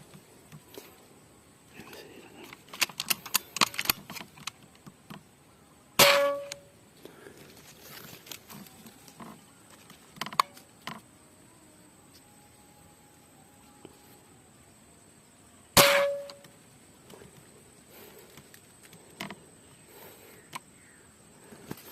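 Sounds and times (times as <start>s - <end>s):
air rifle mechanical clicks: 2.4s - 5.2s
air rifle shot with metallic ring: 6.0s - 6.7s, 15.8s - 16.5s.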